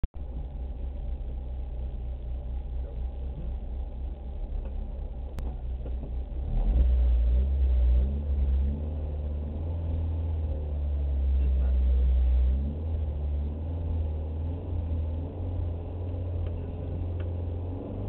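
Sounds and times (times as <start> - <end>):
rally car engine idling and revving: 0.0 - 18.0.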